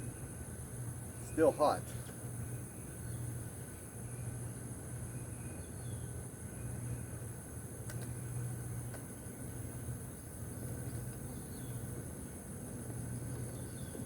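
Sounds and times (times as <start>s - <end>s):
crickets trilling: 0.1s - 7.0s.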